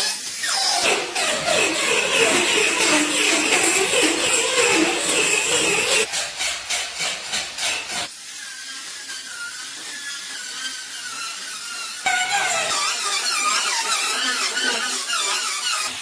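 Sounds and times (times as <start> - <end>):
tool scraping car body: 0.7 - 8.1.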